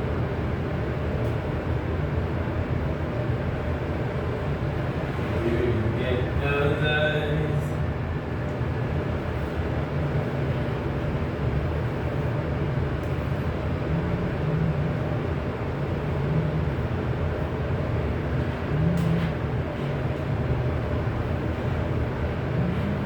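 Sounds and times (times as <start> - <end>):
low mechanical rumble: 0.0 - 23.0.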